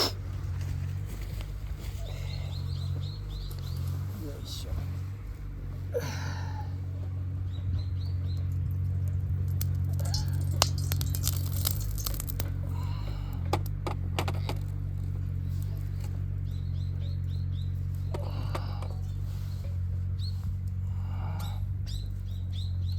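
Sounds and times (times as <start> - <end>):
small birds chirping: 0.0 - 13.5, 14.2 - 22.9
steady low hum: 0.0 - 22.9
sharp crackles and clicks: 8.3 - 12.7.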